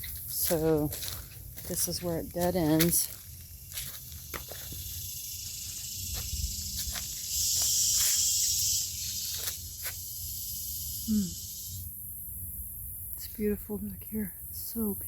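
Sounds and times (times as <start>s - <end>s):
footsteps on dry leaves: 0.0s - 10.1s
high-pitched hiss: 2.7s - 13.5s.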